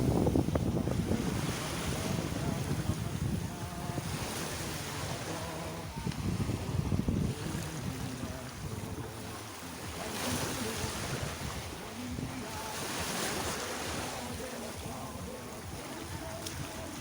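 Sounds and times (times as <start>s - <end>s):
wind buffeting microphone: 0.0s - 9.2s, 9.8s - 17.0s
sea surf washing onto beach: 0.0s - 17.0s.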